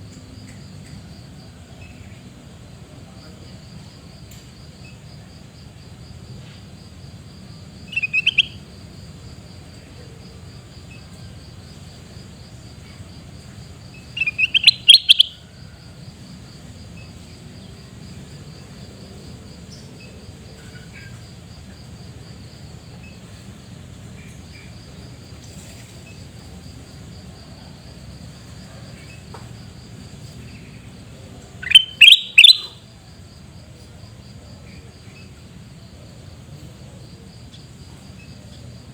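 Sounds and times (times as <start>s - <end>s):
cricket trill: 0.0s - 38.9s
bulbul chirping: 7.9s - 8.6s, 14.2s - 15.4s, 31.6s - 32.8s.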